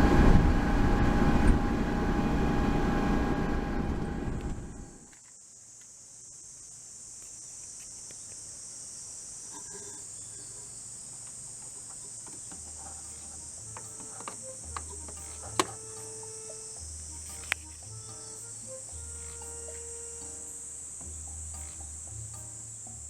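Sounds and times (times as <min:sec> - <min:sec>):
high-pitched insect chirring: 0:05.1 - 0:23.0.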